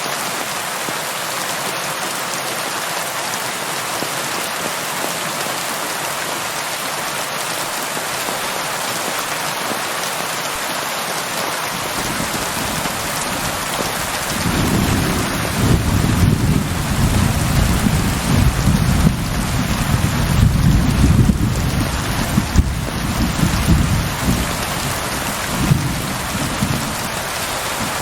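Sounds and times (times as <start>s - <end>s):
heavy rain pattering: 0.0s - 28.0s
low rumble of thunder: 12.0s - 28.0s.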